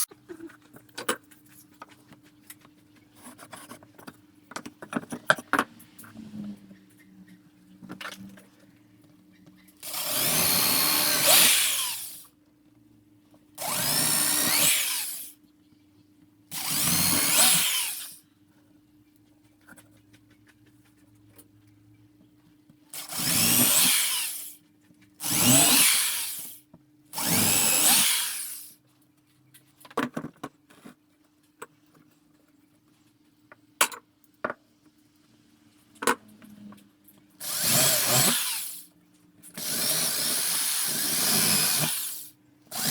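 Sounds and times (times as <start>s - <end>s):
power drill bursts: 9.8s - 12.2s, 13.6s - 15.3s, 16.6s - 18.2s, 23.0s - 24.6s, 25.2s - 26.6s, 27.2s - 28.7s, 37.4s - 38.9s, 39.6s - 42.9s.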